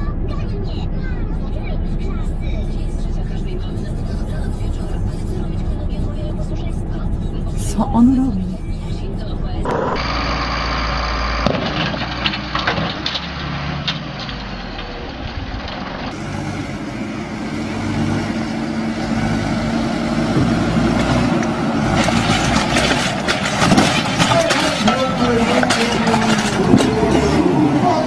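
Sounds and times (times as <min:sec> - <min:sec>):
heavy vehicle engine running: 0:00.0 - 0:28.0
knocks and clatter: 0:11.4 - 0:16.2, 0:20.3 - 0:27.4.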